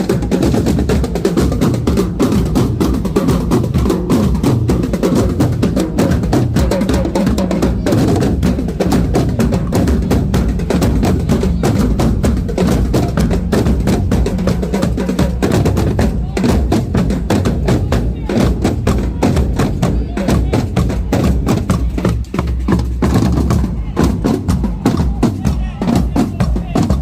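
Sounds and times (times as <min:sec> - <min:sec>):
bass drums: 0:00.0 - 0:27.0
snare drums: 0:00.0 - 0:27.0.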